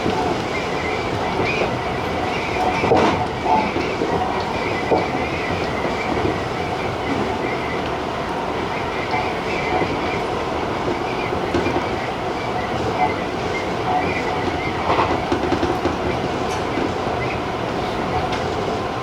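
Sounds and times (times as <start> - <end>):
rail clacks: 0.0 - 19.0
train wheels rumbling on rail: 0.0 - 19.0.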